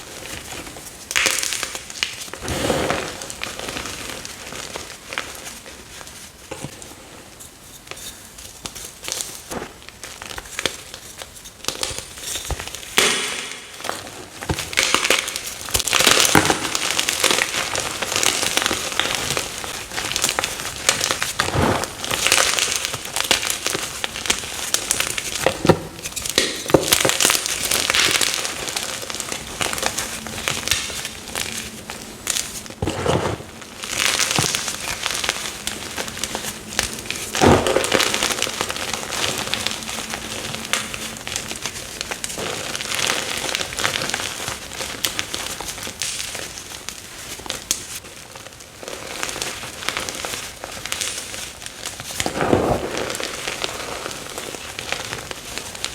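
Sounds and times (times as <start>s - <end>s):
chalk being crushed and crunching: 7.8s - 46.8s.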